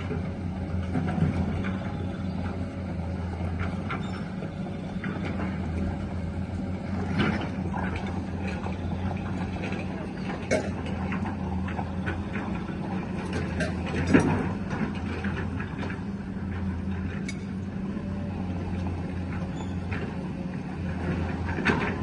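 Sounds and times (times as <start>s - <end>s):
knocks and clanks: 0.0s - 6.2s, 6.8s - 17.6s
excavator diesel engine running: 0.0s - 22.0s.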